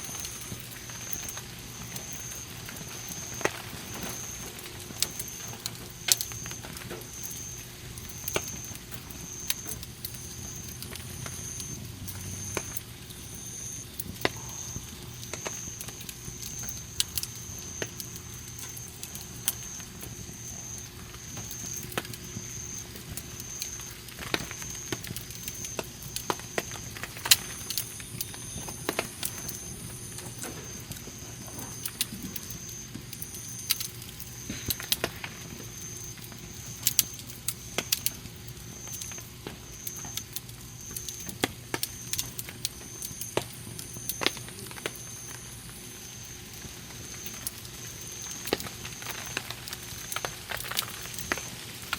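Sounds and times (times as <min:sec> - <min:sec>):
campfire crackling and popping: 0:00.0 - 0:51.9.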